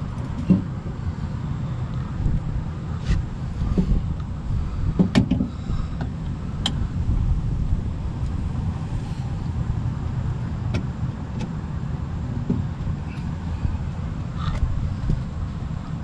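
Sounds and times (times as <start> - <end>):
low rumble: 1.8 - 11.2.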